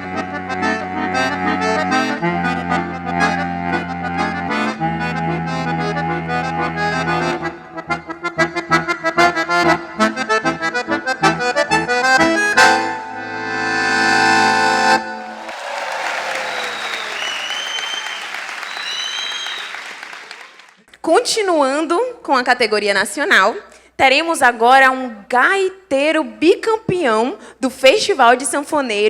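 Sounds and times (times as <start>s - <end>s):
accordion playing: 0.0s - 16.9s.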